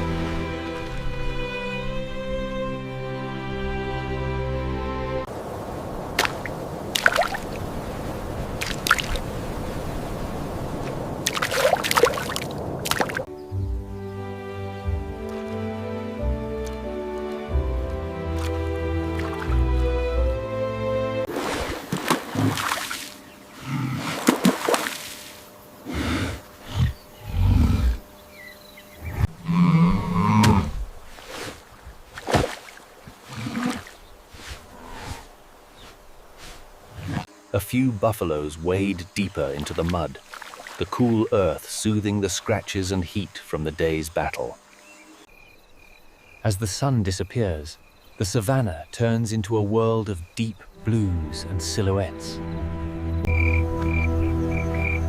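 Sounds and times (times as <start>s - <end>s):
mud squelching and splashing: 6.1s - 7.6s, 8.5s - 9.3s, 10.9s - 13.3s, 21.3s - 23.2s, 23.8s - 25.4s, 30.4s - 34.7s, 39.4s - 42.6s
steady background hiss: 21.4s - 52.3s
large animals calling low: 25.8s - 28.1s, 29.0s - 30.8s.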